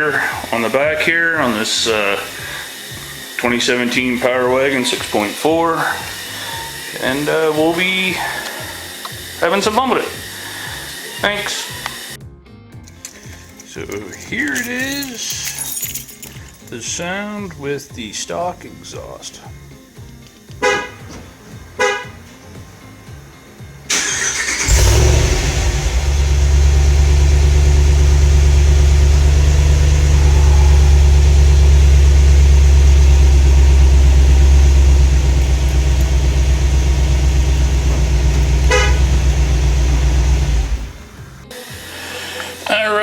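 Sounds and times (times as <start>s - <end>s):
engine cranking and idling: 0.0s - 12.2s, 23.9s - 42.6s
short horn chirps: 20.6s - 21.2s, 38.2s - 40.0s.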